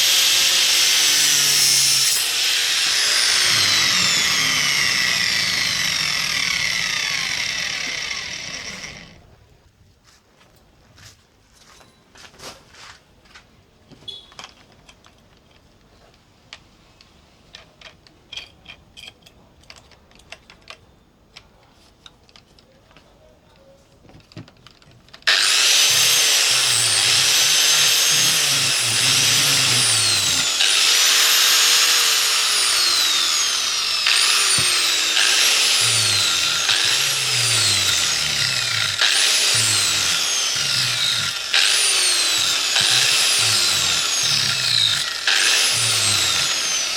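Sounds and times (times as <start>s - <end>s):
electric power tool whining: 0.0s - 9.2s, 25.2s - 46.9s.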